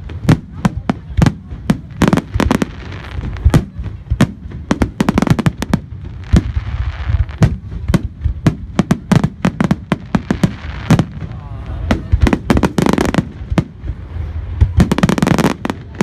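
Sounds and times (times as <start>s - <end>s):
firework bursts and bangs: 0.0s - 16.0s
firework crackling: 0.0s - 16.0s.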